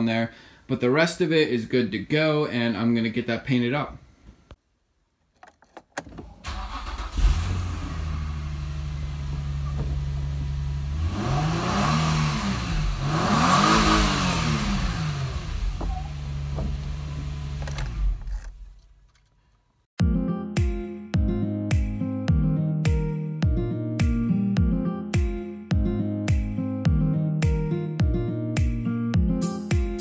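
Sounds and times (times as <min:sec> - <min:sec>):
car engine cranking and starting: 0:05.5 - 0:19.6
car engine idling: 0:06.5 - 0:11.2, 0:14.0 - 0:18.4
engine revving: 0:06.5 - 0:18.2.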